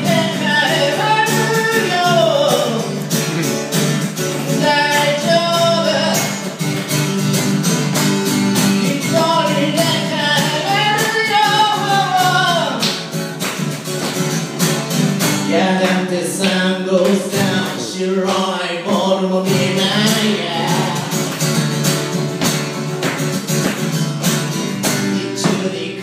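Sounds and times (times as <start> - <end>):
person singing: 0.0 - 6.4, 8.8 - 12.8, 15.4 - 21.3, 25.1 - 26.0
acoustic guitar strumming: 0.0 - 26.0.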